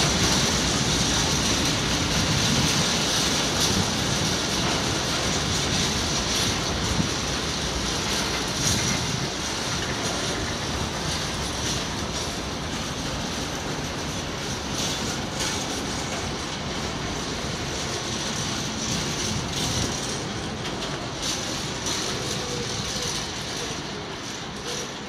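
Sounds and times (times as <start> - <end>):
train wheels rumbling on rail: 0.0 - 25.0
wheels clicking over rail joints: 0.0 - 25.0.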